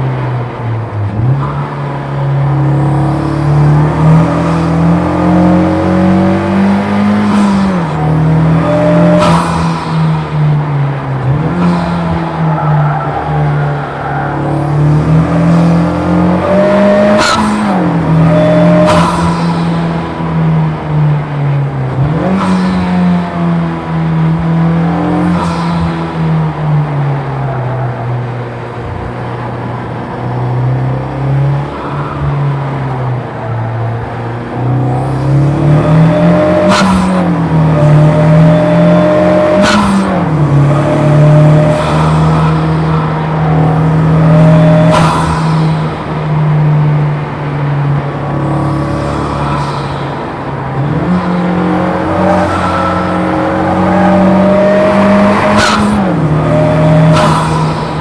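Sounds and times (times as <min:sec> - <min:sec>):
car engine revving: 0:00.0 - 0:58.0
tyres squealing: 0:02.6 - 0:23.1, 0:31.7 - 0:58.0
exhaust cracks at gear shifts: 0:31.6 - 0:58.0.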